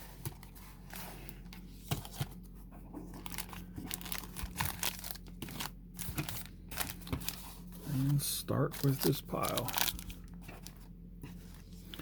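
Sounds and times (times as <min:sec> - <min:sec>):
plastic wrappers crinkling and tearing: 0:03.1 - 0:10.9.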